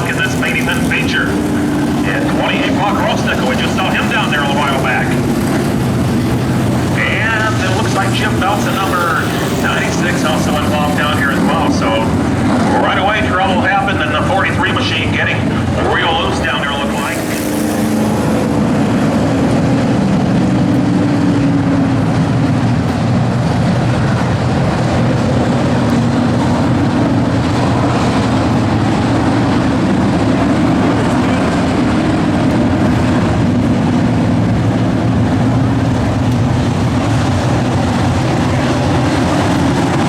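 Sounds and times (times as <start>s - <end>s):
race truck engines racing: 0.0s - 40.0s.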